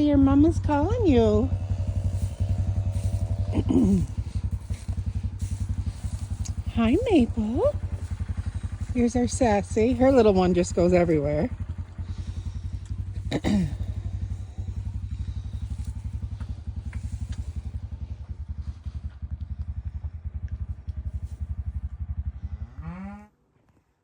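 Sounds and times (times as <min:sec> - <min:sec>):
engine idling: 0:00.0 - 0:23.0
cow mooing: 0:00.5 - 0:08.1, 0:22.5 - 0:23.4.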